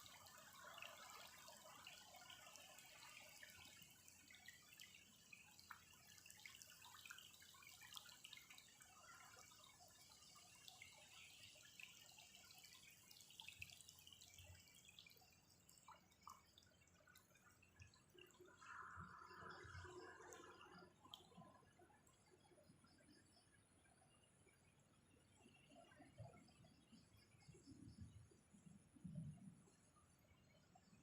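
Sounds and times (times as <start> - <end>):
faint rain patter: 0.0 - 19.6.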